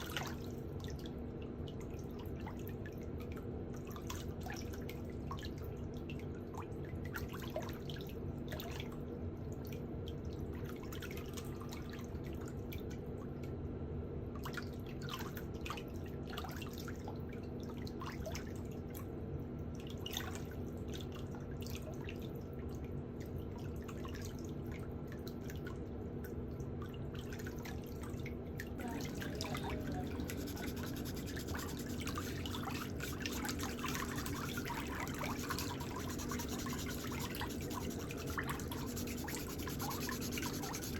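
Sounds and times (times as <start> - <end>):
steady low hum: 28.8 - 40.9.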